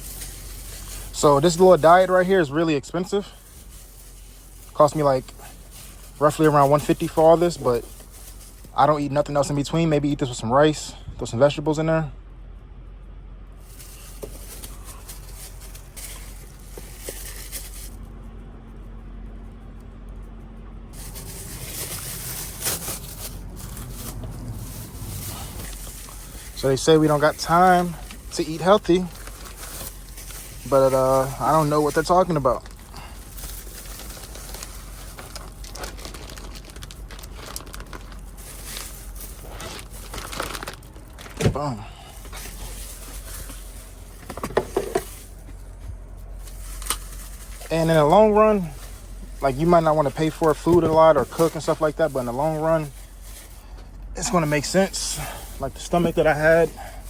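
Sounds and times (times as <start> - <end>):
rustling and handling noises: 0.0 - 10.4, 13.5 - 57.0
steady low hum: 0.0 - 57.0
packaging crinkling and clicking: 29.1 - 30.7, 32.3 - 41.5.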